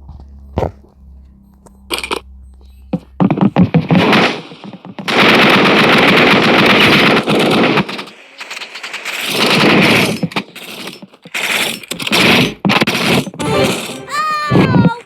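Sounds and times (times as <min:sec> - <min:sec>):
loud rapid crackling: 0:03.2 - 0:14.2.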